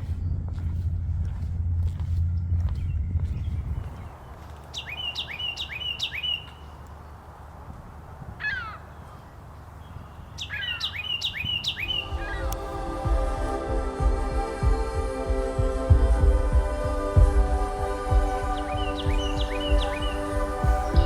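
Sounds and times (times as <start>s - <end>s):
wren singing: 2.4s - 7.3s, 8.4s - 12.9s, 18.3s - 21.0s.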